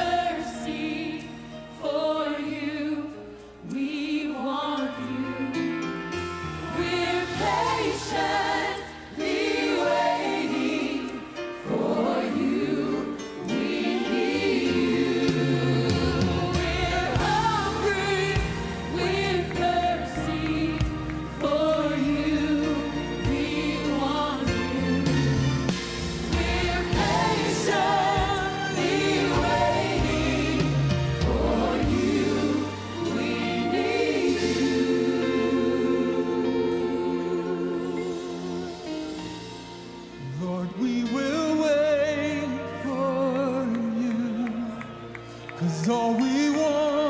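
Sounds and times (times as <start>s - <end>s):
gospel choir singing: 0.0s - 47.0s.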